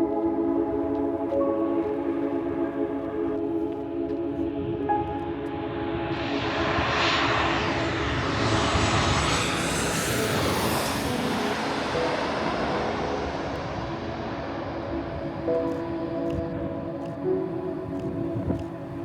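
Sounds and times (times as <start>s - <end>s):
jet airliner passing overhead: 4.4s - 19.0s.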